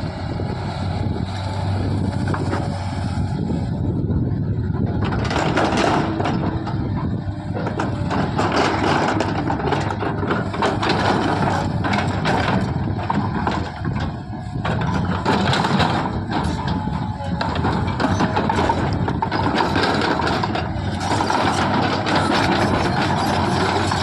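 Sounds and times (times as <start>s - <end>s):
diesel engine running: 0.0s - 24.0s
short knocks and clanks: 4.8s - 24.0s.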